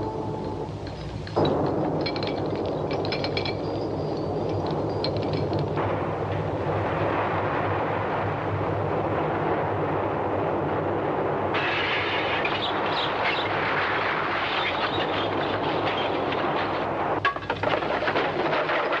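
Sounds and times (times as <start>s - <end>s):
crashing and clattering: 0.0s - 6.6s, 11.6s - 19.0s.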